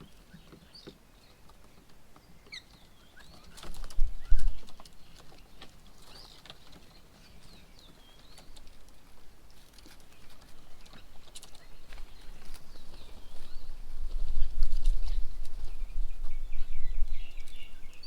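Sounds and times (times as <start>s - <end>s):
birds chirping and whistling: 2.2s - 8.6s, 10.1s - 18.0s.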